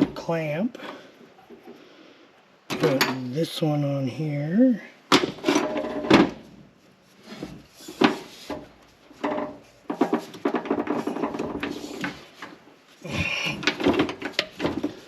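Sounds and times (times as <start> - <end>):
metal clattering and scraping: 7.2 - 12.6.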